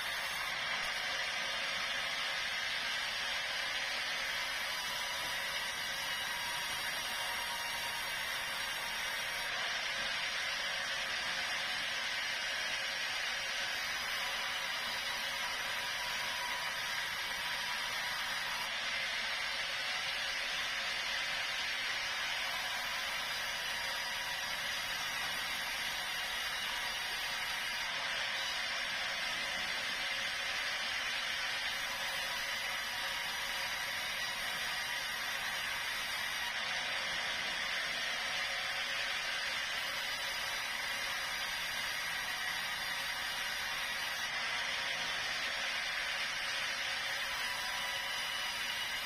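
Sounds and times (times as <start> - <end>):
sawmill saw cutting log: 0.0 - 49.0.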